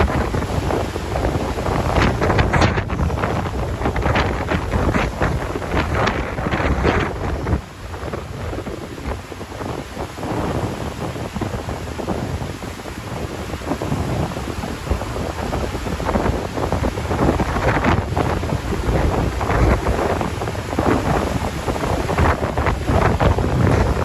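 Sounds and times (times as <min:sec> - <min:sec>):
strong wind buffeting microphone: 0:00.0 - 0:24.0
surf washing on beach: 0:00.0 - 0:24.0.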